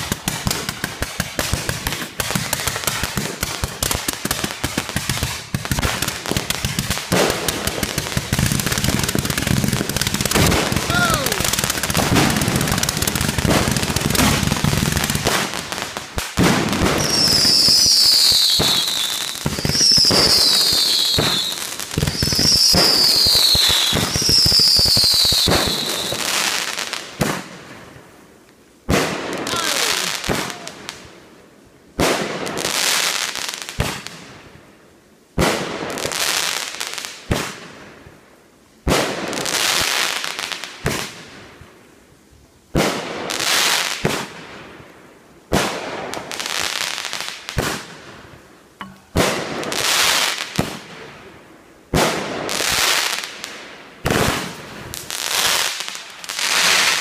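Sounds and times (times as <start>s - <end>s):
fireworks crackling and banging: 0.0s - 28.0s, 28.8s - 31.2s, 32.0s - 34.5s, 35.4s - 37.9s, 38.8s - 41.5s, 42.7s - 44.8s, 45.5s - 57.0s
falling firework whistles: 16.9s - 26.4s.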